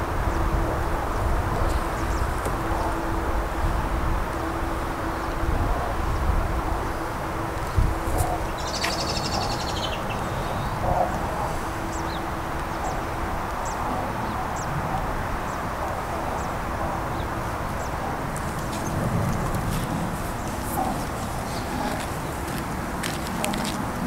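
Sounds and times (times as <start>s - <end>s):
background noise rush: 0.0s - 24.0s
small birds chirping: 8.1s - 23.8s.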